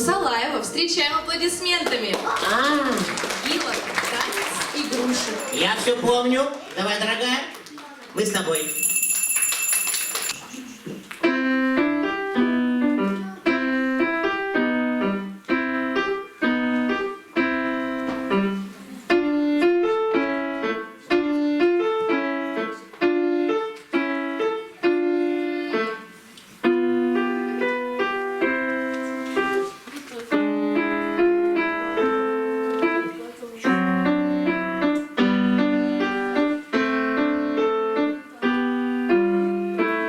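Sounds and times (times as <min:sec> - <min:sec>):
solo piano piece: 0:11.2 - 0:40.0.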